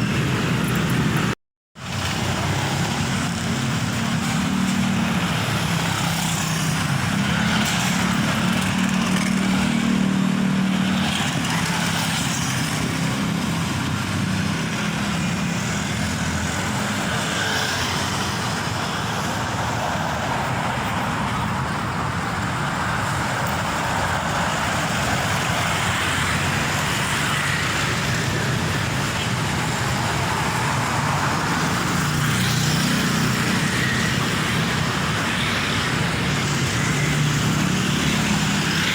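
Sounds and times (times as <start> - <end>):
rush of tyres and traffic: 0.0 - 38.9.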